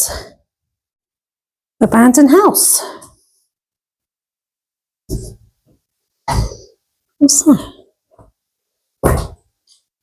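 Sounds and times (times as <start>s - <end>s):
dull thump: 9.0s - 9.4s.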